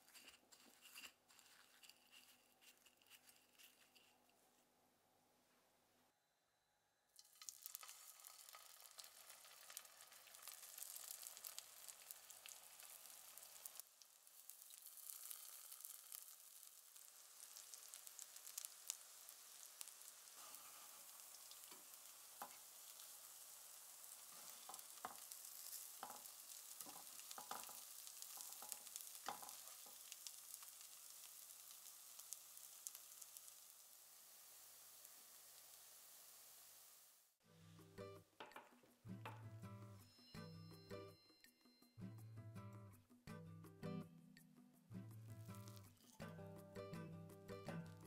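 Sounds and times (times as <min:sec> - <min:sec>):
spatula scraping a pan: 0:00.0 - 0:04.3, 0:20.1 - 0:30.6
patties sizzling in a pan: 0:07.2 - 0:37.4, 0:45.4 - 0:46.2.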